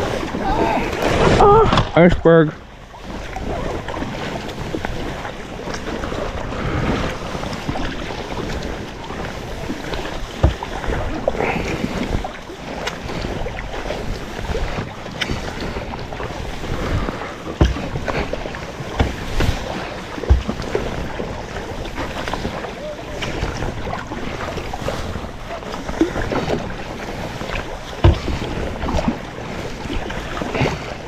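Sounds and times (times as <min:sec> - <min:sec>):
water washing against hull: 0:00.0 - 0:31.0
wind buffeting microphone: 0:02.6 - 0:31.0.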